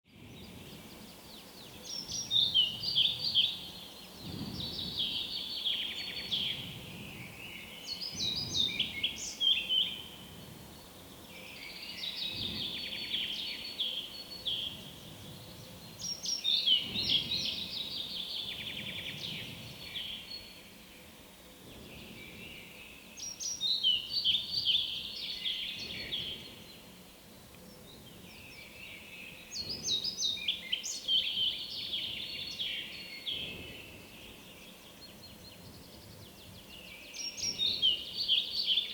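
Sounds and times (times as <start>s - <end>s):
bird singing short song phrases: 27.6s - 38.9s.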